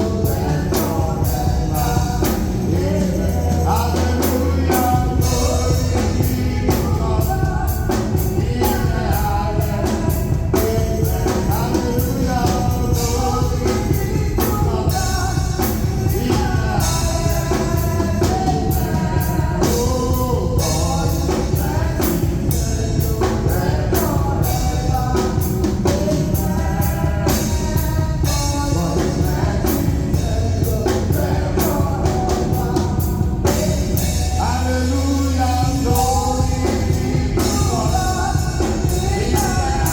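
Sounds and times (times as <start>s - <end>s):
band with drum kit and guitar: 0.0s - 39.9s
person singing gospel: 0.0s - 39.9s.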